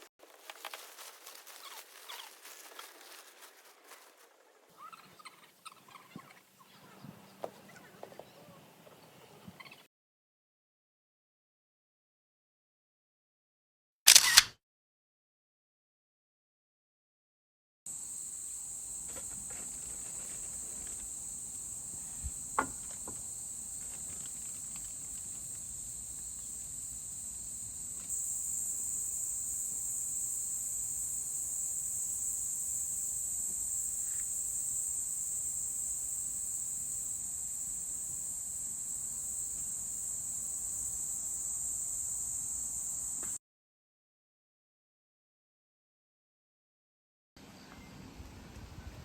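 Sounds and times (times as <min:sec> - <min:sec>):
high-pitched insect chorus: 0:17.9 - 0:43.4.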